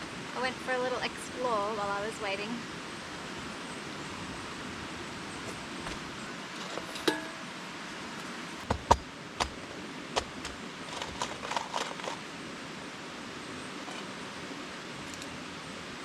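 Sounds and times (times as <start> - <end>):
steady background hiss: 0.0 - 16.0
metal cookware clinking: 6.8 - 7.4
small clicks: 15.0 - 15.4.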